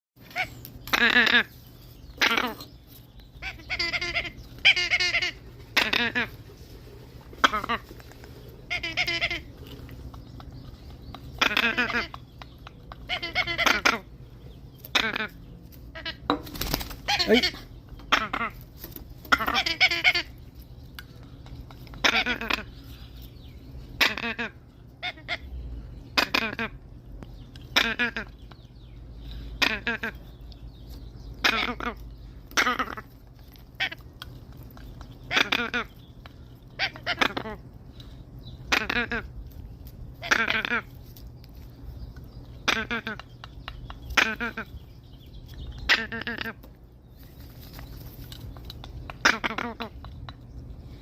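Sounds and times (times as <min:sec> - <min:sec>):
parrot squawking: 0:00.2 - 0:02.8, 0:03.4 - 0:06.4, 0:07.3 - 0:07.9, 0:08.6 - 0:09.8, 0:11.3 - 0:14.2, 0:14.8 - 0:16.3, 0:17.0 - 0:18.6, 0:19.3 - 0:20.4, 0:22.0 - 0:22.8, 0:24.0 - 0:25.5, 0:26.2 - 0:26.8, 0:27.7 - 0:28.5, 0:29.6 - 0:30.3, 0:31.4 - 0:33.1, 0:33.7 - 0:34.2, 0:35.1 - 0:36.0, 0:36.7 - 0:37.7, 0:38.6 - 0:39.4, 0:40.2 - 0:40.9, 0:42.6 - 0:44.9, 0:45.8 - 0:46.6, 0:49.0 - 0:50.0.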